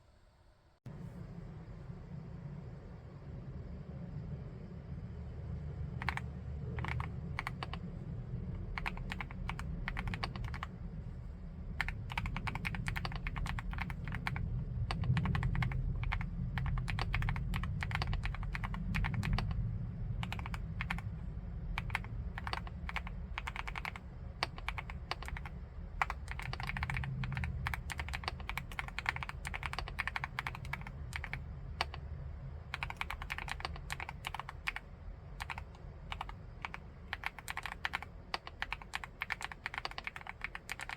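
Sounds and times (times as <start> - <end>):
fast typing on a metal keyboard: 6.0 - 6.2, 6.8 - 7.8, 8.7 - 10.7, 11.8 - 19.6, 20.2 - 21.1, 21.7 - 32.0, 32.7 - 34.8, 35.4 - 40.9.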